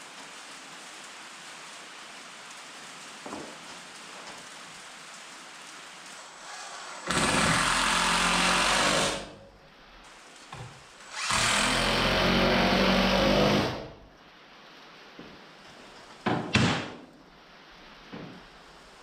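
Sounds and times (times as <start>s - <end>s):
power tool motor running: 11.1s - 13.9s.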